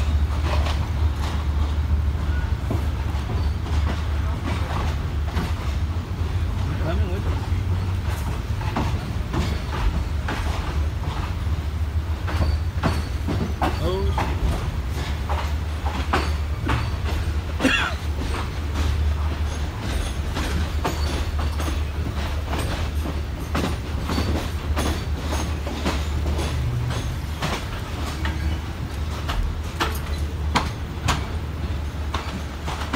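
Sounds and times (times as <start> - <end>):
train rumble: 0.0 - 32.9
wheels clacking over rail joints: 0.0 - 32.9
high wheel squeal: 3.3 - 3.8.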